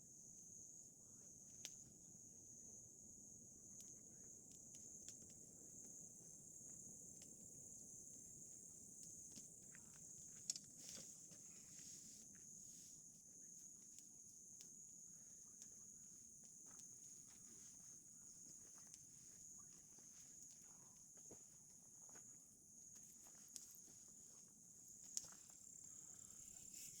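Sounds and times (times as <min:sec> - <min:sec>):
crickets chirring: 0:00.0 - 0:27.0
campfire crackling: 0:03.2 - 0:20.6, 0:24.8 - 0:26.2.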